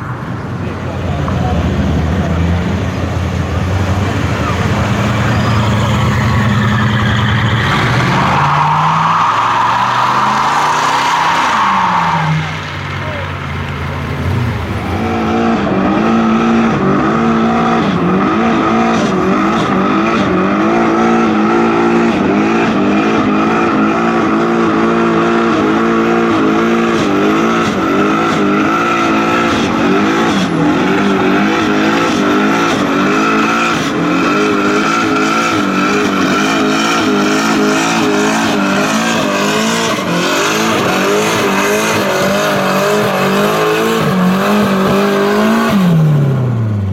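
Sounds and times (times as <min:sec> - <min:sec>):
car engine at high revs: 0:00.0 - 0:46.9
tyre squeal: 0:04.4 - 0:13.3.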